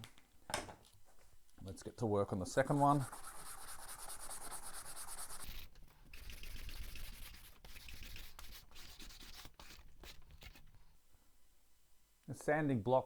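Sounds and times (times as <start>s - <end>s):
sanding block rubbing wood: 2.6s - 10.6s.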